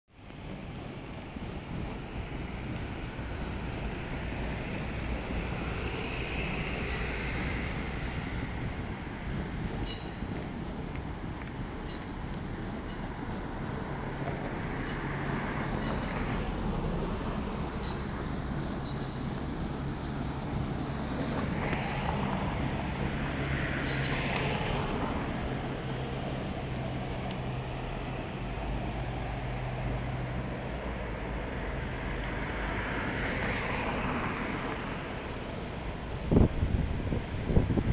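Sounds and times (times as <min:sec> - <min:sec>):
city traffic noise: 0:00.1 - 0:37.9
electric trains rumbling: 0:00.1 - 0:37.9.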